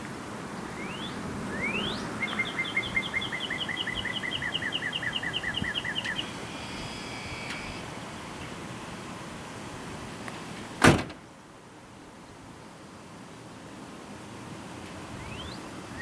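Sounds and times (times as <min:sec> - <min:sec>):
bird singing: 0:00.6 - 0:08.6, 0:15.2 - 0:16.0.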